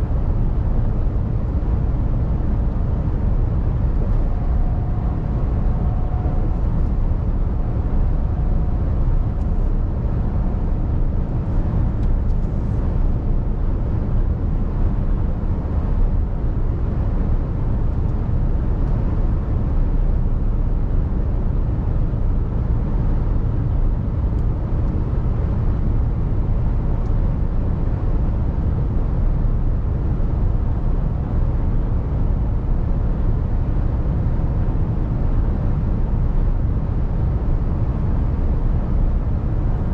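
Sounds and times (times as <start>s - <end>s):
truck diesel engine driving: 0.2s - 15.0s.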